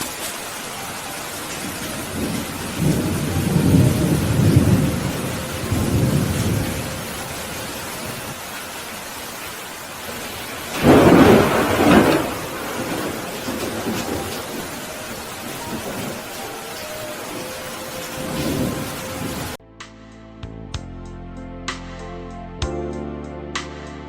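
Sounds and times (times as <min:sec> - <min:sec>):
thunder rolling: 0:00.0 - 0:08.8, 0:10.0 - 0:19.6
steady rain falling: 0:00.0 - 0:19.6
sharp thunderclap: 0:01.6 - 0:08.3, 0:10.2 - 0:16.3.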